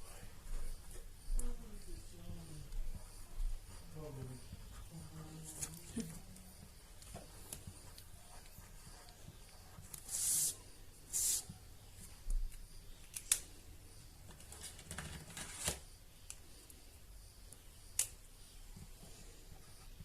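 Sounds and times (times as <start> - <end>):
pen scratching on paper: 2.7 - 11.6.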